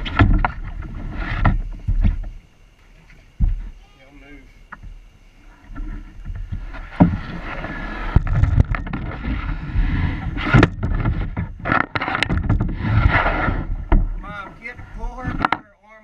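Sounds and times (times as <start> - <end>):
knocks and scrapes on kayak hull: 0.0 - 3.9, 4.7 - 15.6.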